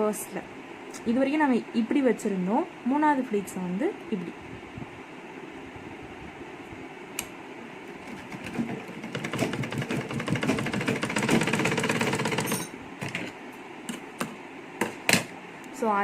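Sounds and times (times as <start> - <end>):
sewing machine stitching: 7.9 - 13.3.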